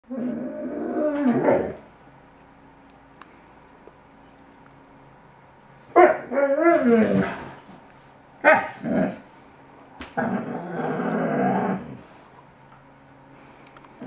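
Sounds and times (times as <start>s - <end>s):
puppy yelping and howling: 6.0s - 7.2s.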